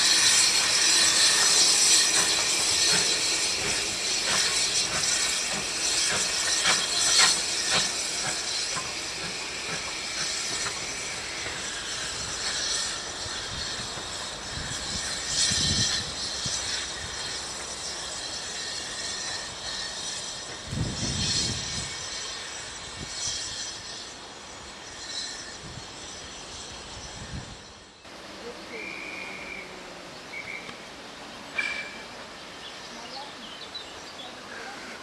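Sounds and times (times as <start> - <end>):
steam locomotive hissing: 0.0 - 35.0.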